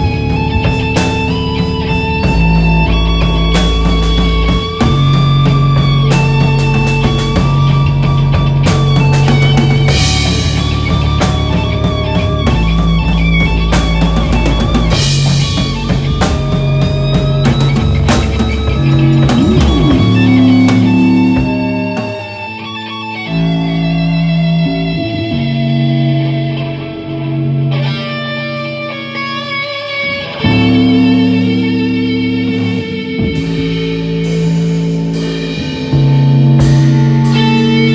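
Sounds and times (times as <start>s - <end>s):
bass guitar sustained notes: 0.0s - 37.9s
electric guitars: 0.0s - 37.9s
rock band playing: 0.0s - 37.9s
cymbal crashes: 13.8s - 22.7s, 30.5s - 37.9s.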